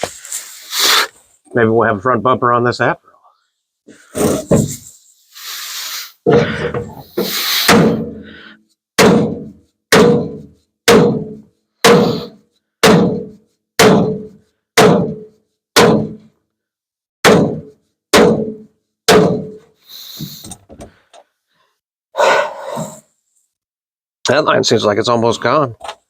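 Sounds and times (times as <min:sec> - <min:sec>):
hammer striking sheet metal: 0:07.2 - 0:08.3, 0:09.0 - 0:16.3, 0:17.2 - 0:19.7.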